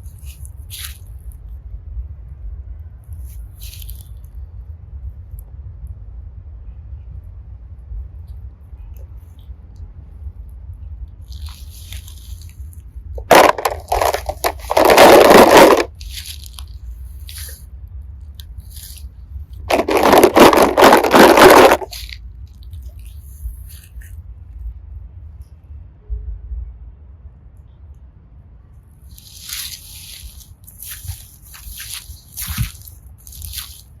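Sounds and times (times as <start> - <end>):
hands digging through plastic pieces: 0.2 - 1.0, 11.3 - 12.6, 13.2 - 17.6, 18.6 - 19.0, 19.7 - 24.1, 29.1 - 34.0.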